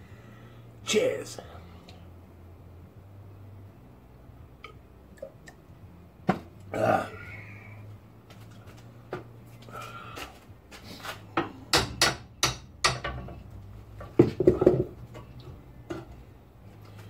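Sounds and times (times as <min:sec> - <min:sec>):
hand tools knocking on metal: 0:11.4 - 0:16.2.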